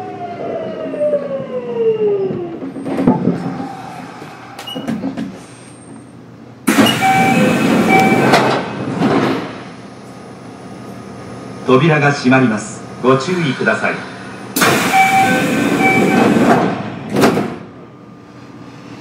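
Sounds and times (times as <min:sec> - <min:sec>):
low steady train hum: 0:00.0 - 0:19.0
loud air hiss: 0:14.6 - 0:15.7.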